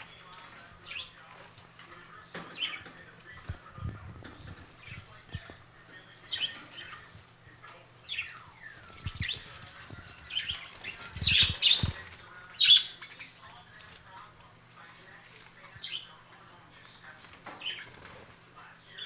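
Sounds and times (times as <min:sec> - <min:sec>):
budgerigars chirping: 0:08.1 - 0:14.3, 0:15.4 - 0:16.3.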